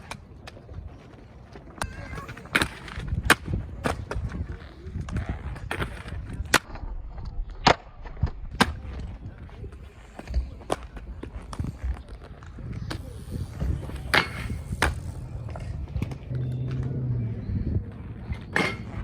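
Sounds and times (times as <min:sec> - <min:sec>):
skateboard clacking on ground: 0:00.0 - 0:17.2, 0:17.8 - 0:19.0
skateboard rolling on concrete: 0:00.0 - 0:19.0.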